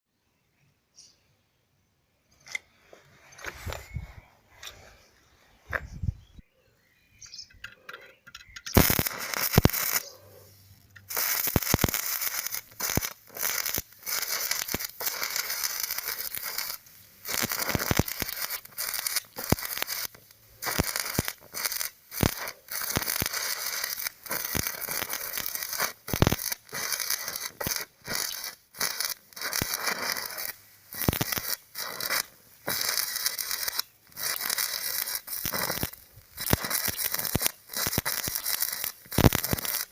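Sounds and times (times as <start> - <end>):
arc welding crackling: 8.7 - 39.9.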